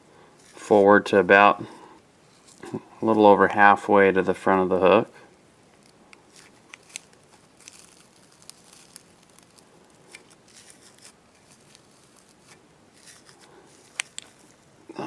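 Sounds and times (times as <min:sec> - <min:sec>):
faint thread rustling and ticks: 0:02.2 - 0:03.6, 0:05.3 - 0:15.0.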